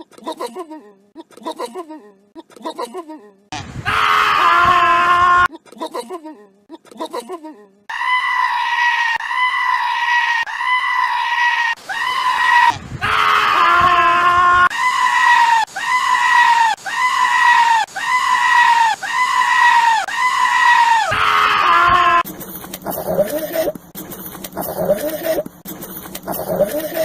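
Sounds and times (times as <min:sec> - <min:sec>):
goat screaming: 0:07.9 - 0:22.3.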